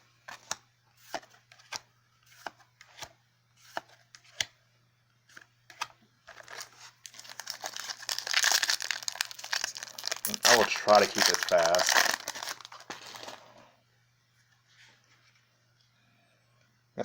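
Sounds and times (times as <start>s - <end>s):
foil pack crinkling: 6.3s - 13.6s.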